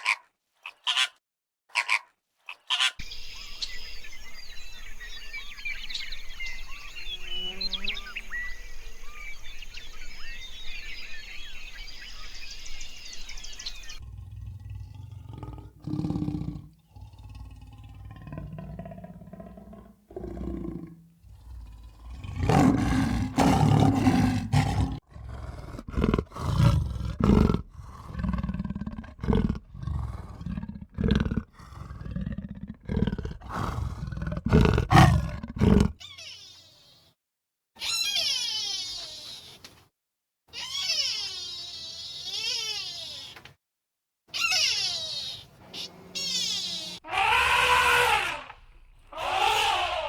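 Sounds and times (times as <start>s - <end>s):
peacock calls: 0.0s - 1.2s, 1.8s - 3.8s, 40.6s - 43.5s, 44.3s - 50.0s
bison bellowing: 14.0s - 32.0s.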